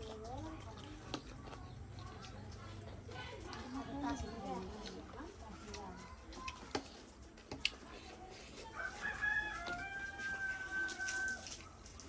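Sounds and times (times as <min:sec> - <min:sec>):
rooster crowing: 0:08.8 - 0:11.6.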